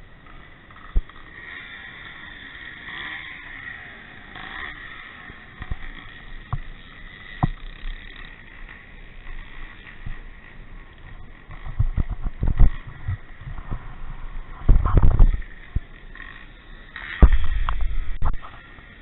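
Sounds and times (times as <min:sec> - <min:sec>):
distant motocross motorcycles: 0:00.0 - 0:19.0
thumps on microphone: 0:11.7 - 0:13.8, 0:14.6 - 0:15.4, 0:17.2 - 0:18.5.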